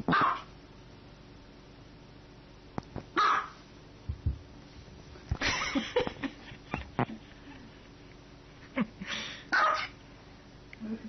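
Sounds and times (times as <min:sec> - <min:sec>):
small dog barking: 0:00.1 - 0:00.5, 0:03.2 - 0:03.6, 0:09.5 - 0:10.0.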